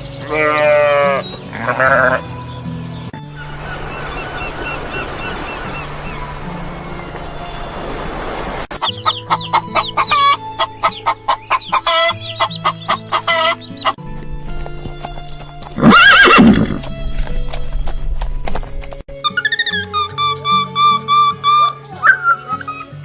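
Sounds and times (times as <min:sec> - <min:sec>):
horse whinnying: 0:15.8 - 0:17.0.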